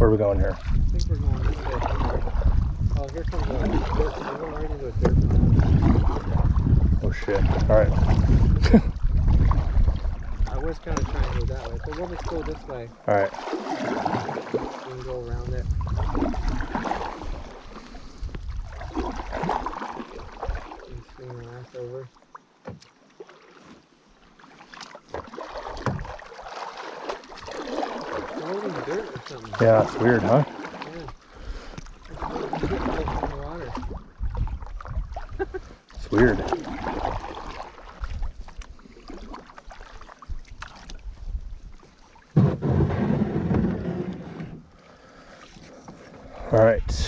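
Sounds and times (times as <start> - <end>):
low rumbling: 0.0 - 13.1
canoe paddles in water: 0.0 - 47.0
paddle knocks: 5.0 - 6.3, 22.6 - 22.9, 24.7 - 30.9, 42.3 - 44.6.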